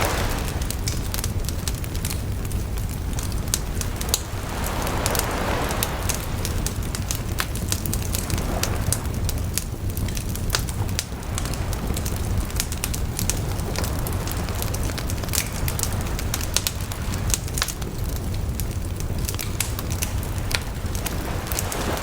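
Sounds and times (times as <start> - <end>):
low rumble: 0.0 - 17.0
bonfire crackling and popping: 0.0 - 22.0.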